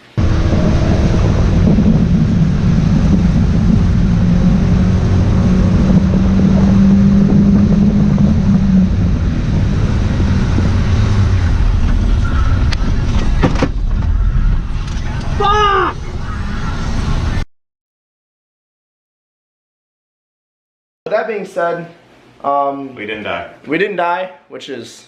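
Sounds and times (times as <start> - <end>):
car engine: 0.0 - 17.4
road and wind noise: 0.0 - 17.4.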